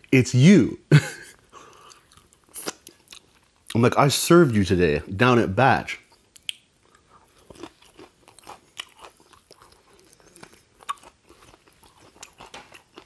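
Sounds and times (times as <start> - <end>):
crunching and chewing: 1.4 - 3.8, 6.1 - 13.0.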